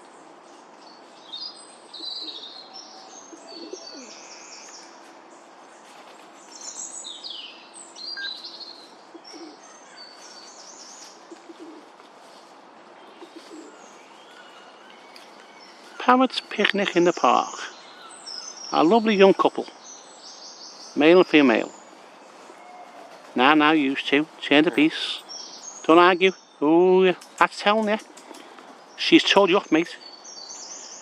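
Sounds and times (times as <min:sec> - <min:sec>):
parrots chirping: 0:22.6 - 0:26.4.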